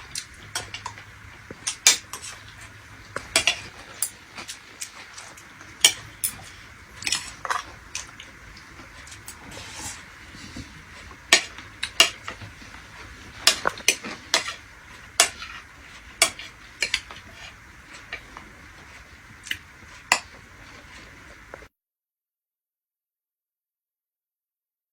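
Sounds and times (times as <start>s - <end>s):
faint steady hiss: 0.0s - 21.7s
metal utensils clinking on dishes: 3.2s - 7.7s, 13.4s - 14.6s.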